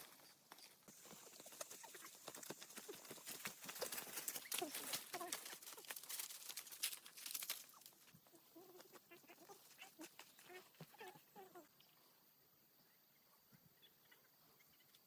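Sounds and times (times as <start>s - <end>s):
farm animals calling: 0.0s - 6.0s, 7.4s - 12.0s, 13.7s - 15.0s.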